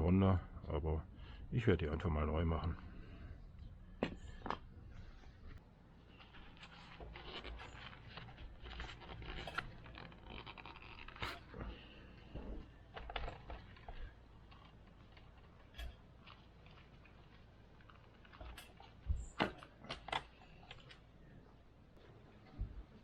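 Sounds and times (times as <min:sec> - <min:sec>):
metal parts scraping and clicking: 0:06.2 - 0:11.6.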